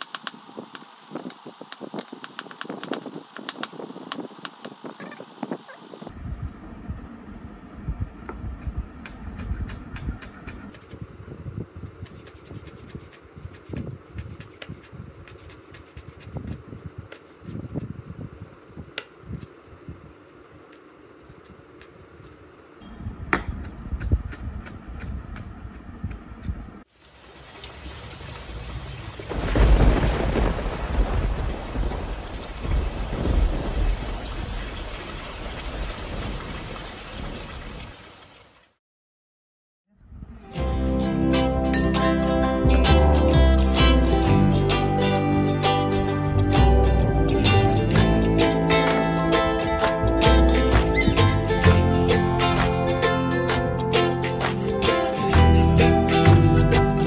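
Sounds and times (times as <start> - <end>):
rain: 26.9 - 38.8
thunder rumbling: 28.4 - 37.8.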